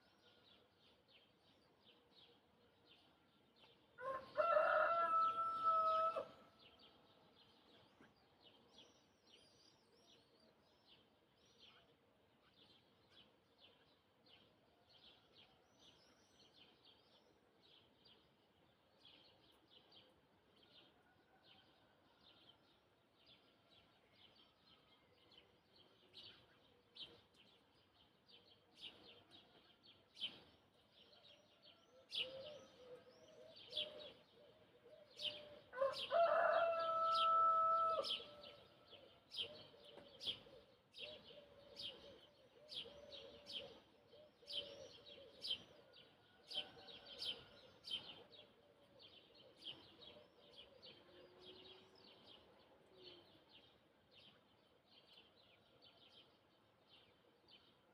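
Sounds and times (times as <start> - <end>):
rooster crowing: 4.0 - 6.4, 35.7 - 38.4
small birds chirping: 23.9 - 57.9.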